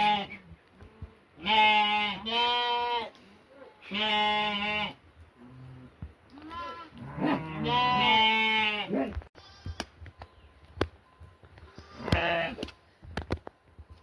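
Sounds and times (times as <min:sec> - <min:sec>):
goats bleating: 0:01.4 - 0:03.2, 0:03.8 - 0:05.0, 0:06.3 - 0:09.8, 0:11.7 - 0:12.6.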